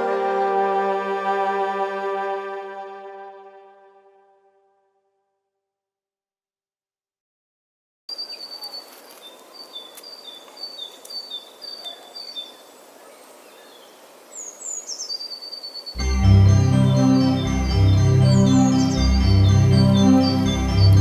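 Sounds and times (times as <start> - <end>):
keyboard music: 0.0 - 4.6, 16.0 - 21.0
small birds chirping: 8.1 - 21.0.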